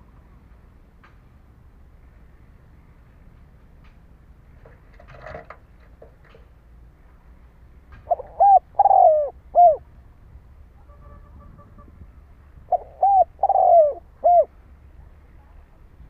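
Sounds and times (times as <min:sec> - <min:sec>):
dove cooing: 0:08.0 - 0:09.9, 0:12.7 - 0:14.5.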